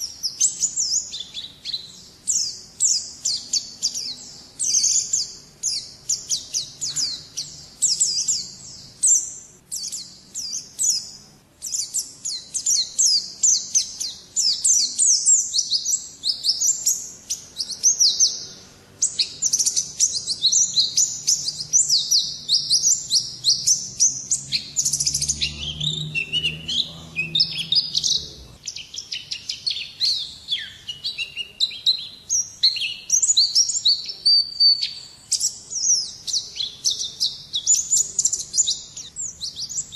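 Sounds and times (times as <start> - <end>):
bird twittering: 0.0 - 39.9.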